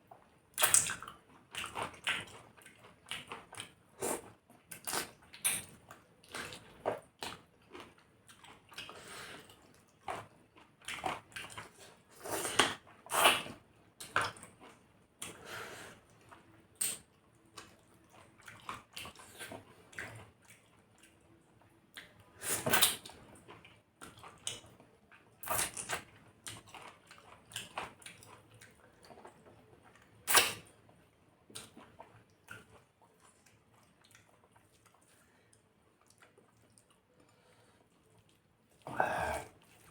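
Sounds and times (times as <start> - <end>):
chewing and lip smacks: 0.6 - 11.8, 16.1 - 21.2, 21.9 - 30.7, 31.5 - 38.9.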